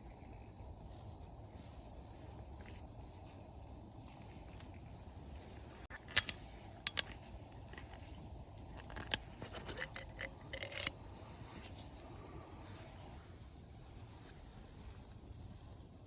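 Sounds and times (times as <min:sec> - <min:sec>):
faint background hiss: 0:00.0 - 0:16.0
sharp clicks and light clinks: 0:05.3 - 0:12.2.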